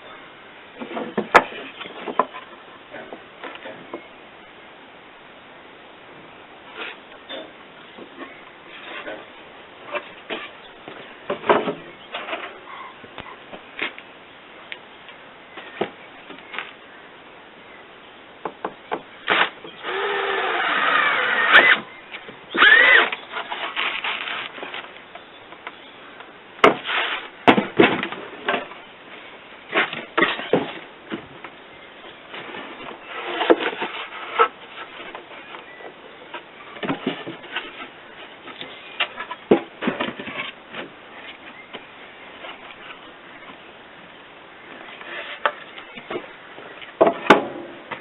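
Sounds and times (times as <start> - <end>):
knocks and scrapes on wood: 36.3 - 43.6.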